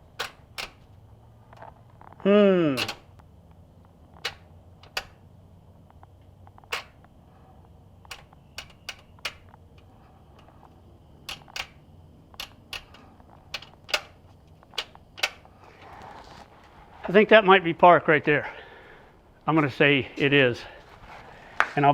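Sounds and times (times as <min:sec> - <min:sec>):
shift lever clicking: 0:00.0 - 0:03.2, 0:04.1 - 0:05.3, 0:06.5 - 0:15.6.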